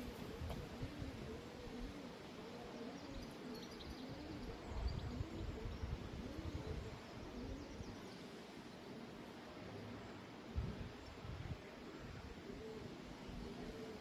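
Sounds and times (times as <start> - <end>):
wind on microphone: 0.0 - 2.0, 4.4 - 7.9, 10.5 - 14.0
pigeon cooing: 0.0 - 7.9, 12.2 - 14.0.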